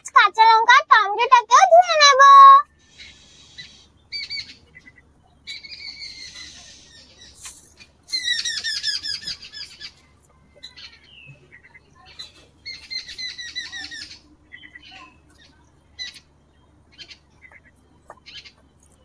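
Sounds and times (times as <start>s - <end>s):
bird squawking: 8.1s - 10.0s, 16.9s - 18.7s.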